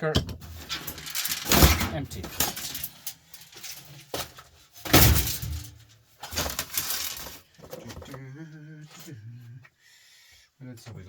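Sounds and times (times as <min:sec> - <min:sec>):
electronic parts clattering: 0:00.0 - 0:08.2.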